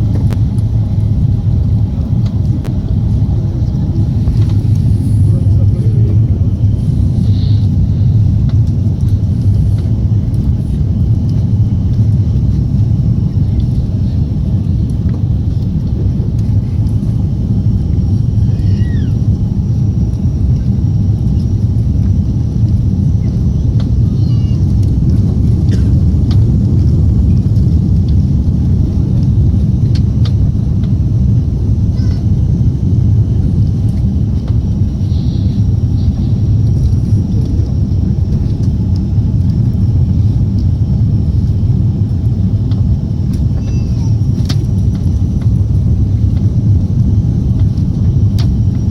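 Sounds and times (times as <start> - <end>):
jet engines rumbling: 0.0 - 48.9.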